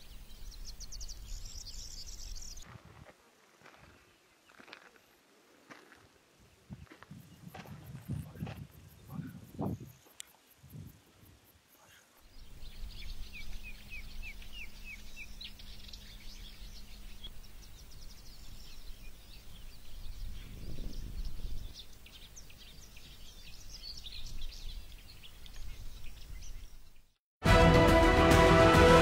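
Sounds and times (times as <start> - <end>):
songbirds chirping and singing: 0.0 - 2.6, 11.8 - 27.1.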